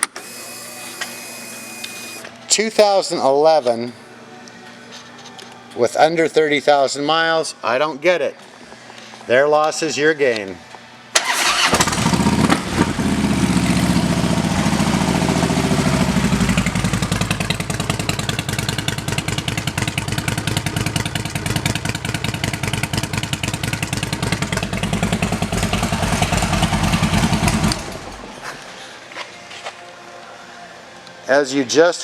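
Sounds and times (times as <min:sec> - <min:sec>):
motorcycle engine idling: 0:12.0 - 0:28.2.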